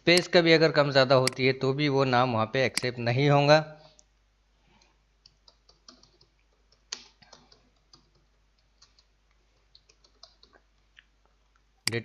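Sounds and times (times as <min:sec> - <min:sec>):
keyboard typing: 0:05.3 - 0:10.7.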